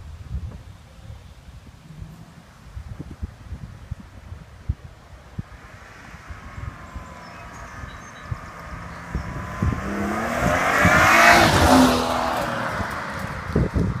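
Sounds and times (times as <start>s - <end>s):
wind buffeting microphone: 0.0s - 14.0s
car accelerating past: 5.5s - 14.0s.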